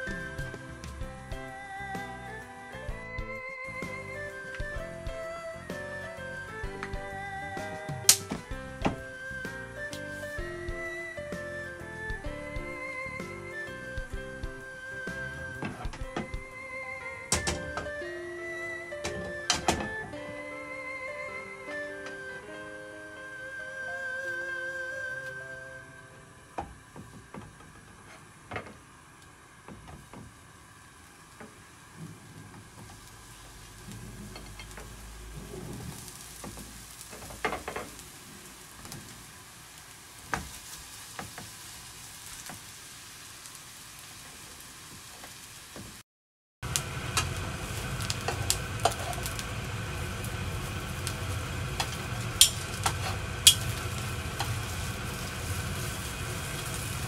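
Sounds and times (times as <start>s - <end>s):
eggplant sizzling in hot oil: 0.0s - 16.7s, 26.8s - 46.0s, 46.6s - 57.0s
metal tongs clicking on pan: 51.8s - 53.8s.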